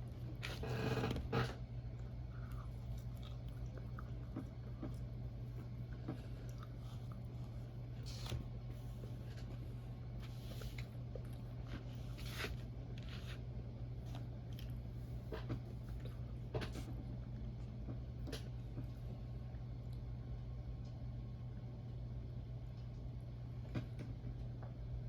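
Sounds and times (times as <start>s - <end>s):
chewing mouth sounds: 2.0s - 7.6s.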